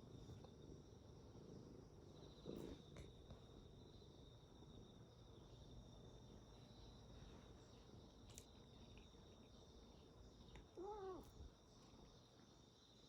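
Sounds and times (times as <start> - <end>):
insects chirring: 0.0 - 13.0
cat meowing: 10.8 - 11.3.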